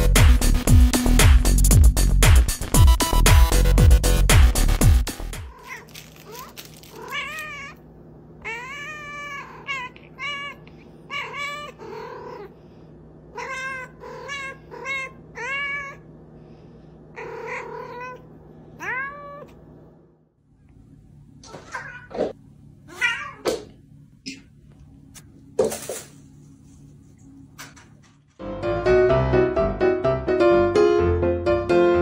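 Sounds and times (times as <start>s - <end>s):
cat meowing: 5.5s - 7.8s, 8.4s - 12.5s, 13.3s - 16.0s, 17.2s - 19.6s, 21.5s - 22.2s, 22.9s - 23.5s.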